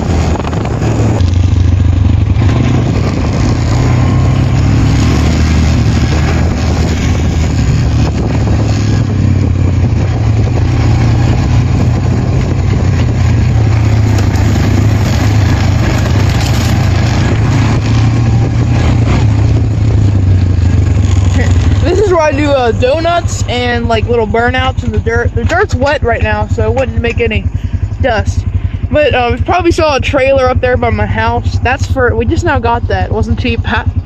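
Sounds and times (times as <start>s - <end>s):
atv engine running: 0.0s - 34.0s.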